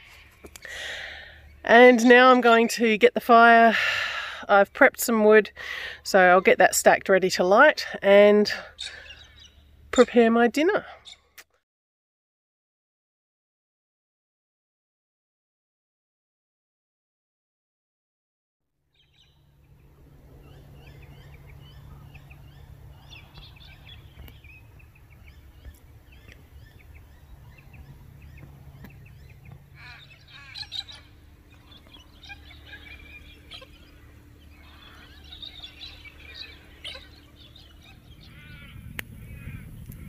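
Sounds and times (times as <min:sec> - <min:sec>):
birds chirping and calling: 0:07.4 - 0:11.4, 0:19.0 - 0:40.0
low rumble: 0:19.3 - 0:40.0.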